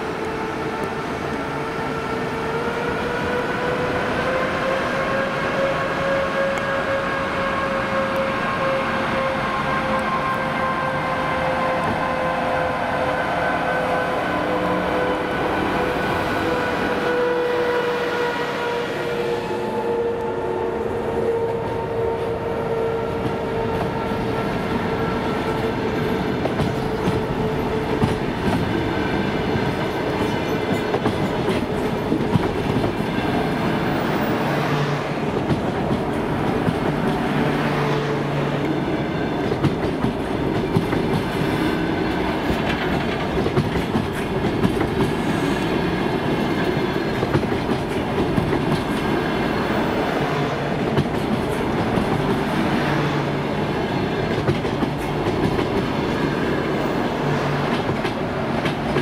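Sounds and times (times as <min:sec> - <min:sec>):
electric locomotive whine: 0:00.0 - 0:59.0
train wheels clacking over rail joints: 0:23.2 - 0:34.1, 0:35.2 - 0:37.8, 0:38.6 - 0:53.1, 0:53.8 - 0:59.0.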